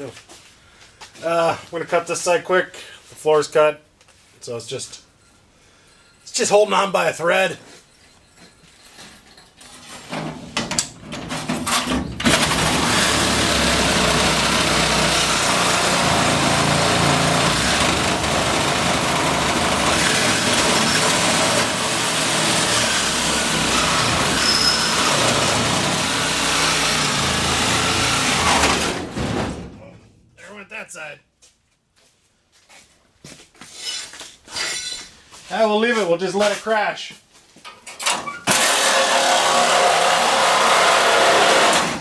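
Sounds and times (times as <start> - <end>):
angle grinder cutting sheet metal: 11.7 - 29.4, 38.4 - 42.0.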